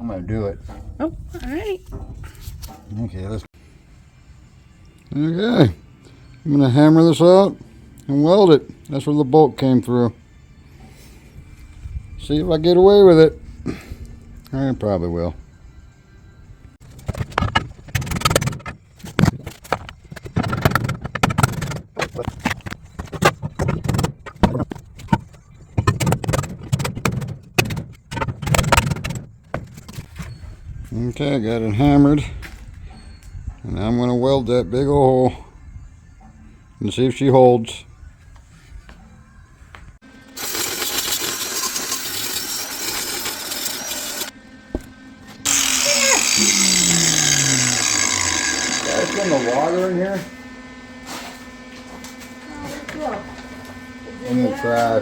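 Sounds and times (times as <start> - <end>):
power tool whining: 40.2 - 55.0
welder crackling: 40.4 - 44.3.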